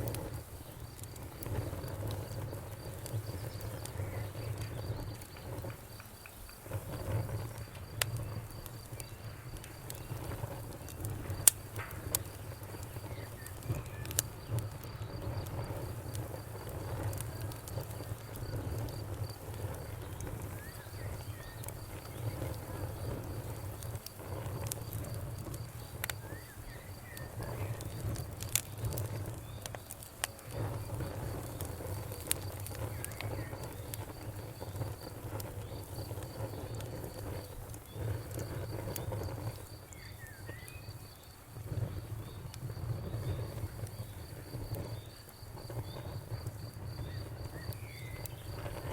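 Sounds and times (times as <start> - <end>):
fire crackling and popping: 0.0 - 48.9
fire flames rumbling: 0.0 - 48.9.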